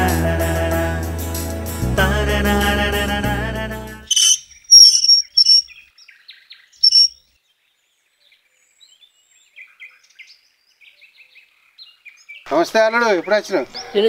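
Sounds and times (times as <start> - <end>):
small birds chirping: 4.1 - 14.0.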